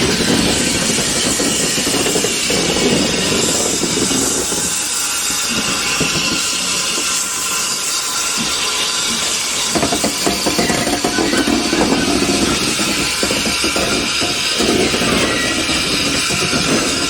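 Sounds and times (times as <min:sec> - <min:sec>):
heavy rumble with rapid knocks: 0:00.0 - 0:17.0
steam hissing: 0:00.0 - 0:17.0.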